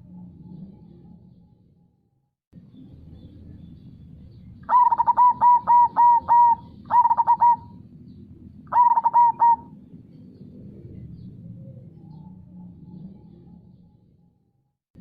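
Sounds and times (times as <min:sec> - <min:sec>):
dove cooing: 0:04.7 - 0:07.9, 0:08.7 - 0:09.8.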